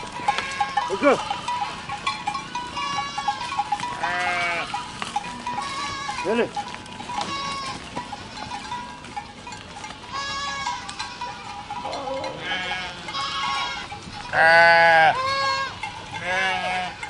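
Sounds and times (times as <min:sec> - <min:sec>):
goats bleating: 0:00.0 - 0:17.0.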